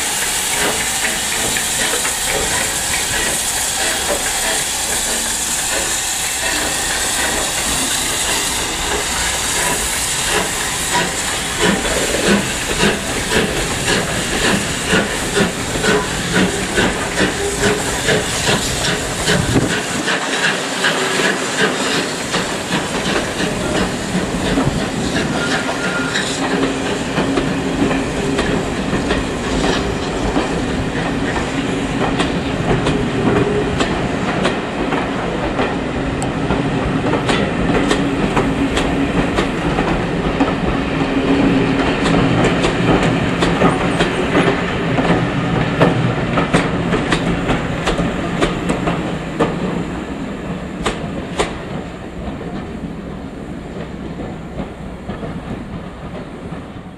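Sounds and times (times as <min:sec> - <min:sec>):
train coaches rumbling past: 0:00.0 - 0:56.9
wheels clicking over rail joints: 0:00.2 - 0:35.8.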